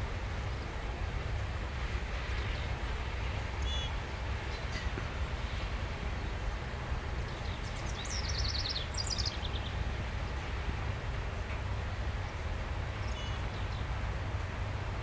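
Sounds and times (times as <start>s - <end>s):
freight train rumbling past: 0.0s - 15.0s
songbird singing: 2.0s - 5.6s, 6.7s - 14.6s.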